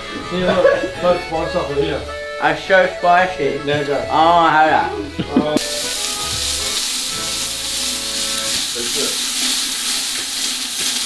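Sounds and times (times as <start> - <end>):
food sizzling in a pan: 5.6 - 11.0.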